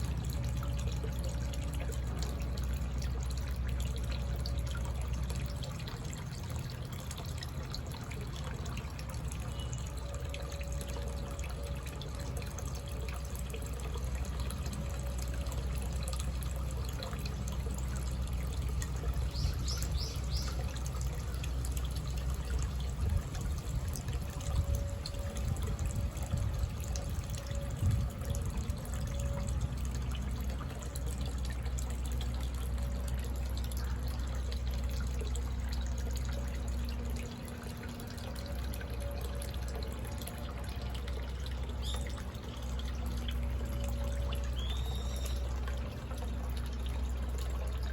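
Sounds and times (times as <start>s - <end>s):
water trickling and dripping: 0.0s - 47.9s
bird call: 44.6s - 45.5s.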